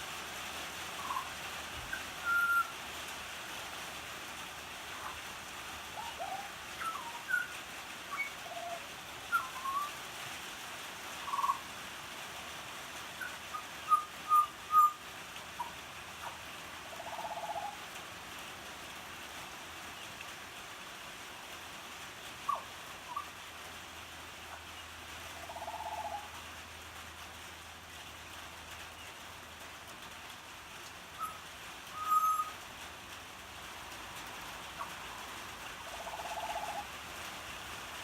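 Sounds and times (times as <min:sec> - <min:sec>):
rain falling: 0:00.0 - 0:38.0
bird whistling song: 0:01.0 - 0:01.3, 0:02.2 - 0:02.7, 0:06.0 - 0:07.5, 0:08.1 - 0:09.9, 0:11.2 - 0:11.6, 0:13.2 - 0:15.0, 0:31.2 - 0:31.4, 0:32.0 - 0:32.6.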